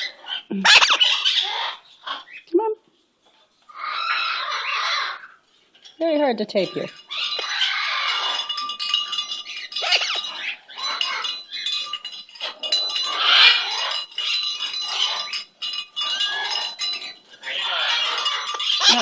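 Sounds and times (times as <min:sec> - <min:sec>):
pet bird calling and chattering: 0:00.0 - 0:02.6, 0:06.6 - 0:15.4.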